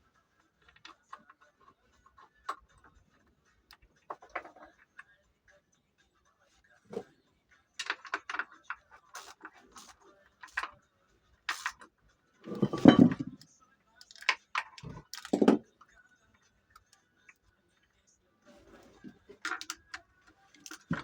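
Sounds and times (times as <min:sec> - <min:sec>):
metal tools clicking and knocking: 0:07.8 - 0:10.8, 0:11.5 - 0:15.7, 0:18.9 - 0:21.0
metal clatter: 0:12.5 - 0:13.4.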